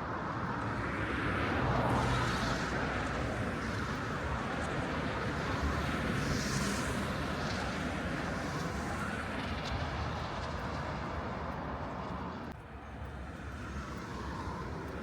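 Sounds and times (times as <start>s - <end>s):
passing vehicles and tyre noise: 0.1s - 15.0s.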